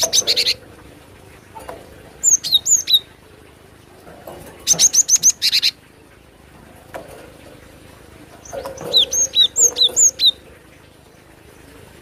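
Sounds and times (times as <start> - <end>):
bird chirps: 2.2 - 3.1, 8.4 - 10.4.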